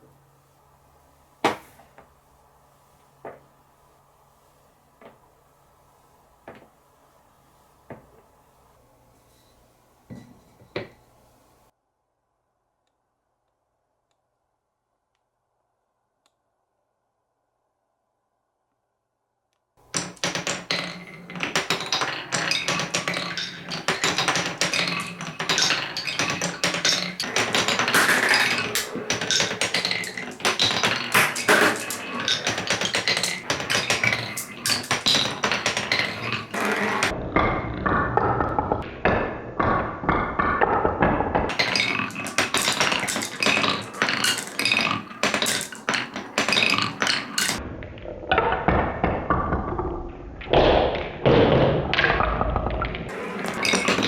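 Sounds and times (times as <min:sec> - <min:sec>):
marbles clattering down wooden run: 0:19.8 - 0:47.6, 0:53.1 - 0:54.0.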